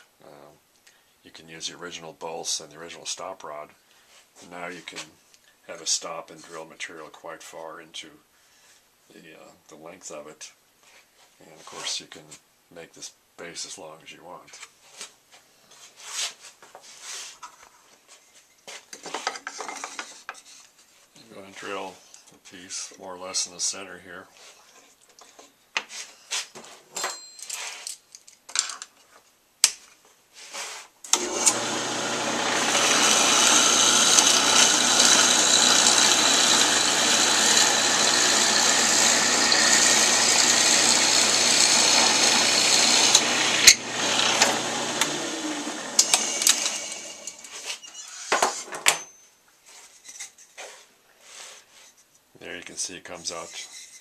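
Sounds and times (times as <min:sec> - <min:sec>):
drill bit boring into wood: 0:31.1 - 0:47.5
drill press motor hum: 0:31.1 - 0:47.5.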